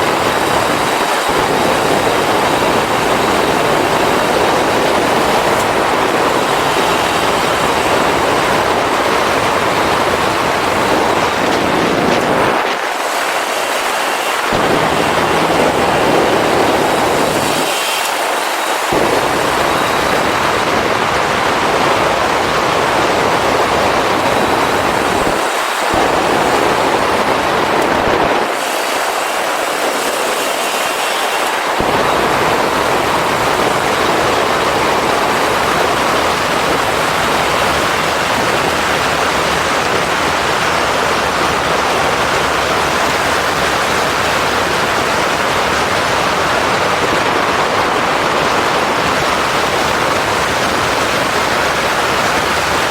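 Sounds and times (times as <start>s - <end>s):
motorcycle engine: 0.0s - 52.9s
wind rushing over microphone: 0.0s - 52.9s.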